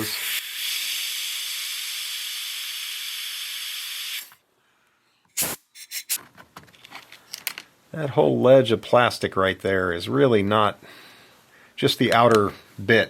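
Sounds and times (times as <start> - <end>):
pressurised air hissing: 5.3 - 6.2.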